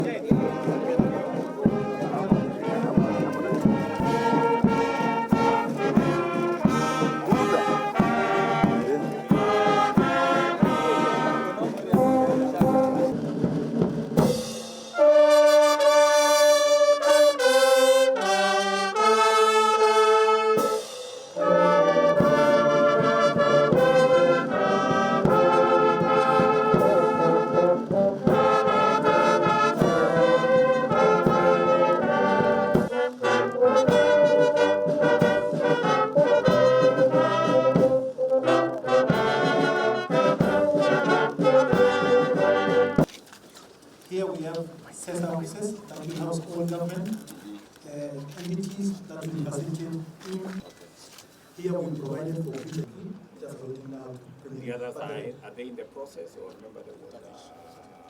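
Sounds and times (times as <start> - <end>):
brass band playing: 0.0 - 43.2.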